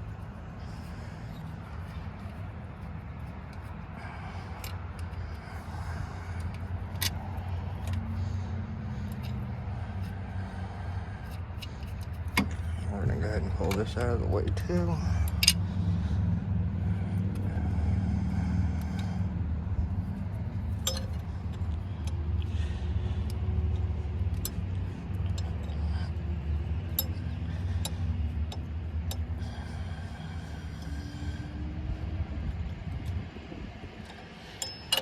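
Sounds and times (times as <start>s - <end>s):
low background hum: 0.0s - 35.0s
hand tools clinking on metal: 20.7s - 21.3s, 34.4s - 35.0s.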